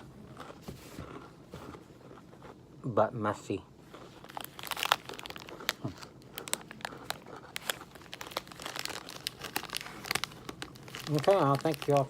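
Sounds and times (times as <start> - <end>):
plastic wrapper crinkling: 3.9 - 12.0.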